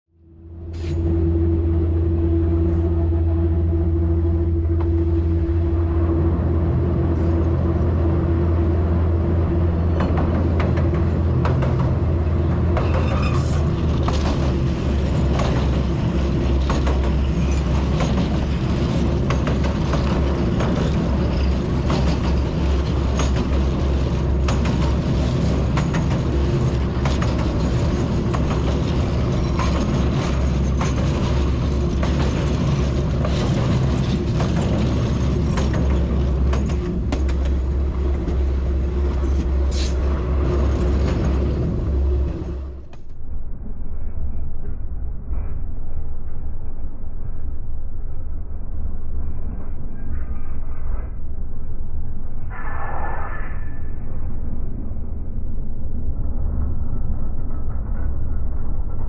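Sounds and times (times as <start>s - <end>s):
diesel locomotive humming: 0.1s - 59.0s
train wheels clattering over rails: 9.4s - 43.1s.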